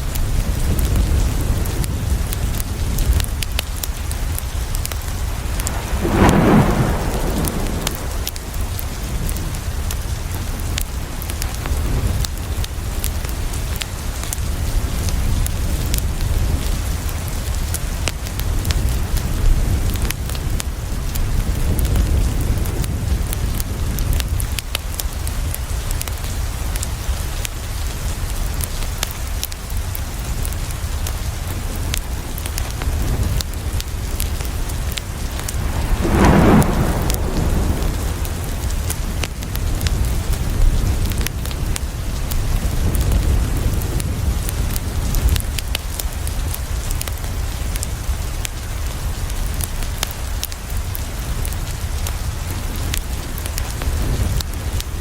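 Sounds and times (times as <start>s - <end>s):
steady rain: 0.0s - 55.0s
deep low rumble: 4.6s - 9.8s, 34.4s - 41.7s
loud rushing burst: 5.1s - 9.4s, 35.0s - 40.0s.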